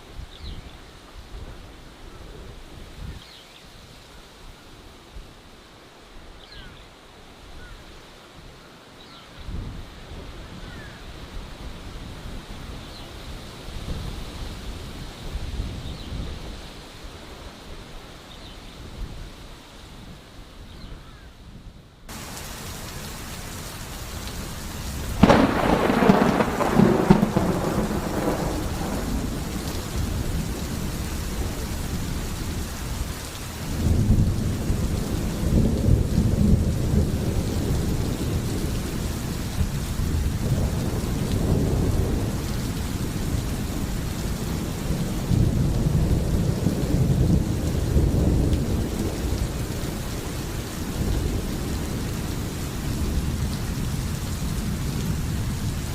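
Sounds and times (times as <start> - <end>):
heavy rain: 0.0 - 55.9
low rolling thunder rumbles: 22.1 - 55.9
loud thunderclap: 25.1 - 31.7, 33.7 - 38.7, 40.0 - 50.0.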